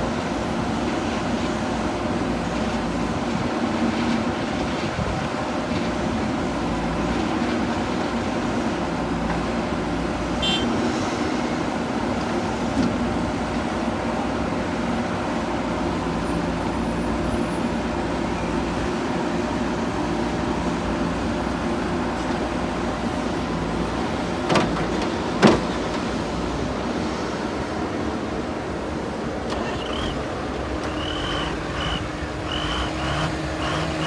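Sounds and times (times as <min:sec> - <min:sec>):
diesel engine running: 0:15.3 - 0:34.0.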